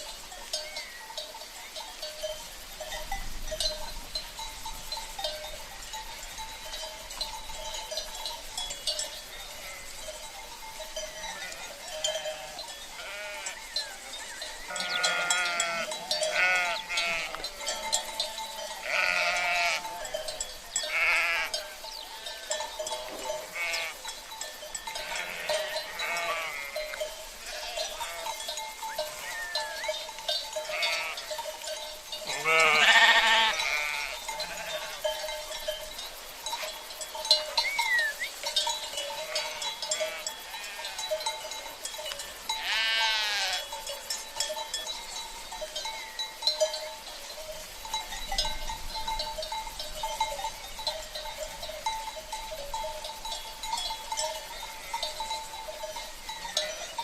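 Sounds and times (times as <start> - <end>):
cowbells ringing: 0.0 - 57.0
sheep bleating: 11.3 - 17.8, 18.8 - 20.1, 20.8 - 22.5, 23.4 - 24.0, 25.0 - 28.4, 29.1 - 29.8, 30.7 - 31.3, 32.3 - 35.0, 39.2 - 41.0, 42.6 - 43.7.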